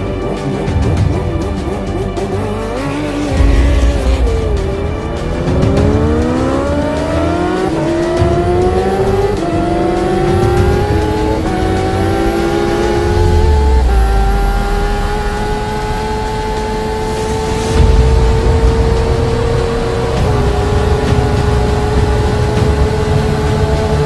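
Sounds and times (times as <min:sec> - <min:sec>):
motorcycle engine accelerating hard: 0:00.0 - 0:24.0.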